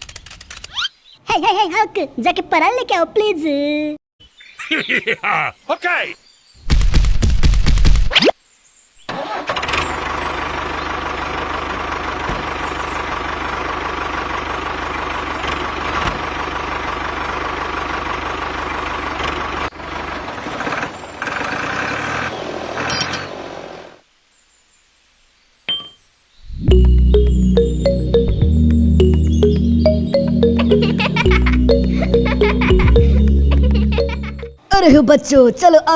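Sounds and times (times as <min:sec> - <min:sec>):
tractor engine running: 0:09.4 - 0:22.0
music: 0:26.6 - 0:34.6.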